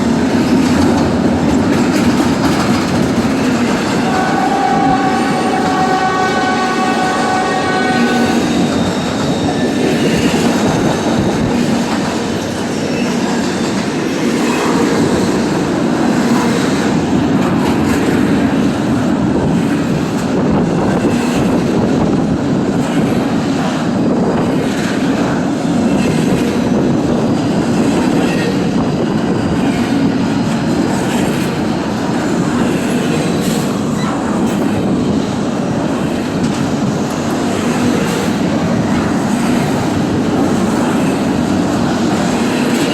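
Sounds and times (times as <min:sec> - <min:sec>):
freight train rumbling past: 0:00.0 - 0:42.9
wheels clicking over rail joints: 0:00.3 - 0:04.1.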